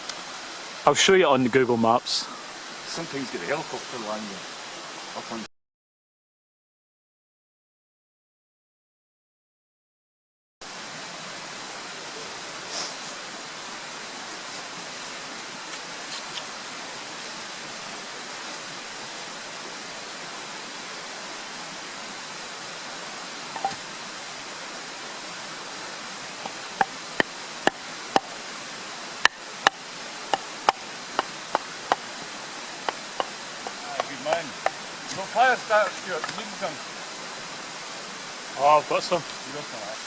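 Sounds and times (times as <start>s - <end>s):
steady rushing outdoor noise: 10.6s - 40.0s
sharp knocks: 29.2s - 34.8s.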